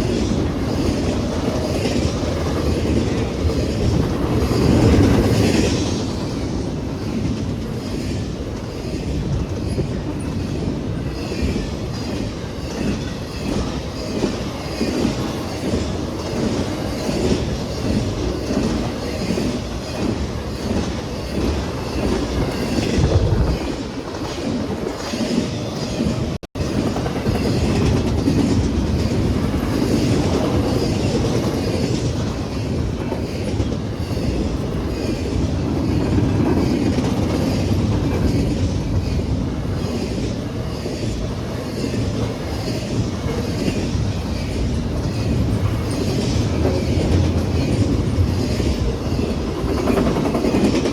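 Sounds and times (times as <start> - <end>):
freight train rumbling: 0.0 - 50.9.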